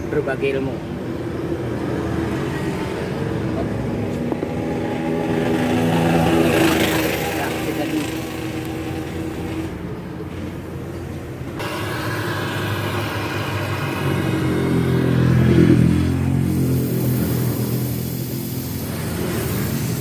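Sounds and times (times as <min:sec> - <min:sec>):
diesel truck engine revving: 0:03.3 - 0:09.8, 0:11.5 - 0:20.0.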